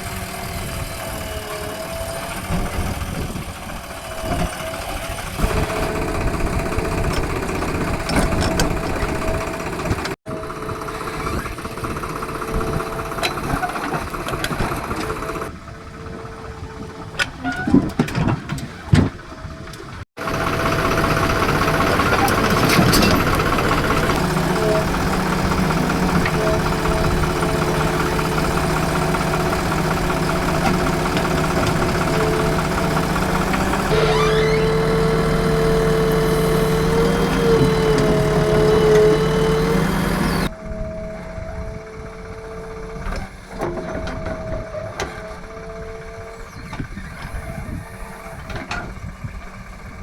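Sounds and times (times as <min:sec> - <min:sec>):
diesel engine of digger: 0:00.0 - 0:50.0.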